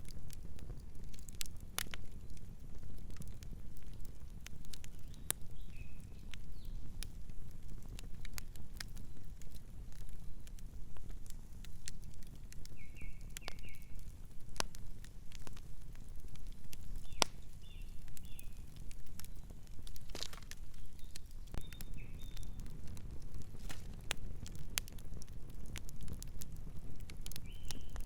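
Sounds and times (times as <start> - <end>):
campfire crackling and popping: 0.0 - 28.0
small bird chirping: 17.0 - 18.6, 20.7 - 22.6, 27.4 - 28.0.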